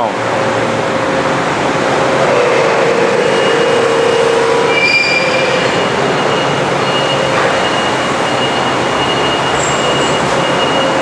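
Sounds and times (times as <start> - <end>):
machinery running: 0.0 - 11.0
thin squealing tones: 3.2 - 11.0.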